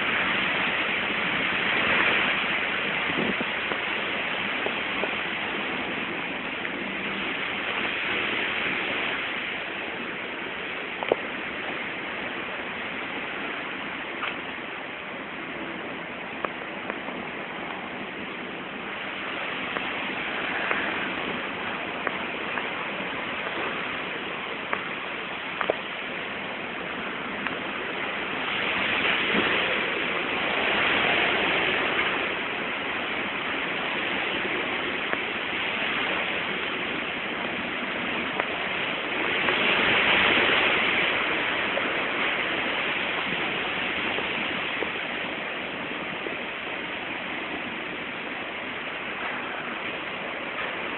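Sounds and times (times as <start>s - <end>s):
heavy rain pouring: 0.0s - 50.9s.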